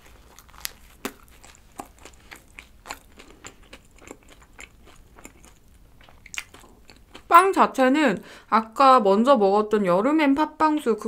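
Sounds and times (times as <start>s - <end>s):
chewing with wet mouth clicks: 0.3s - 7.3s.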